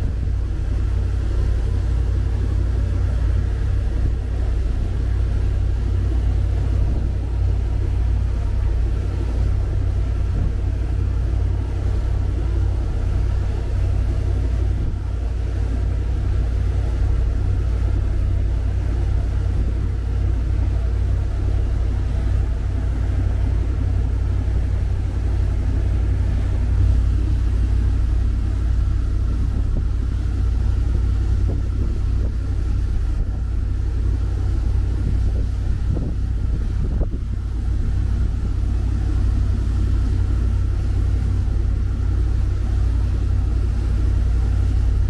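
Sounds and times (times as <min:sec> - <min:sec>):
boat engines rumbling: 0:00.0 - 0:45.0.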